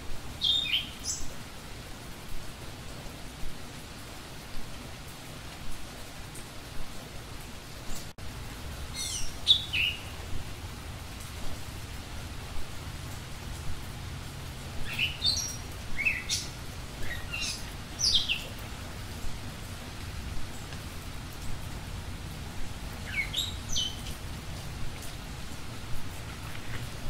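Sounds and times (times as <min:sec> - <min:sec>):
steady hiss: 0:00.0 - 0:27.0
songbird chirping: 0:00.3 - 0:01.4, 0:08.9 - 0:10.8, 0:13.0 - 0:19.4, 0:22.9 - 0:25.2.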